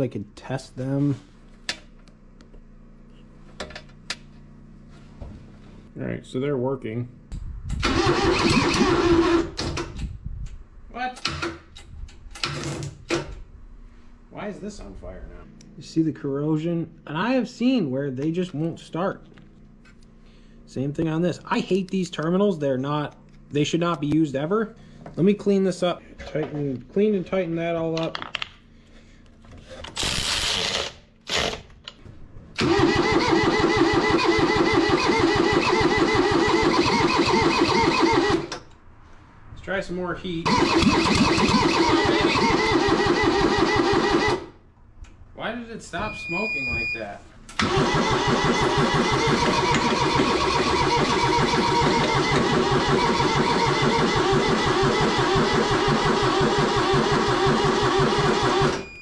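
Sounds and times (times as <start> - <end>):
tractor engine cranking on starter: 7.7 - 10.2, 32.5 - 38.8, 40.5 - 44.6, 47.5 - 59.0.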